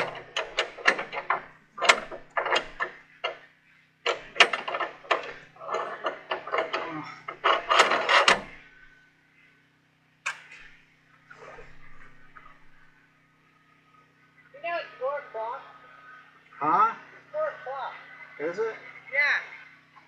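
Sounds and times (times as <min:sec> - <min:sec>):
metal and wood clicks and knocks: 0:00.0 - 0:08.9, 0:10.3 - 0:10.8, 0:11.4 - 0:12.9.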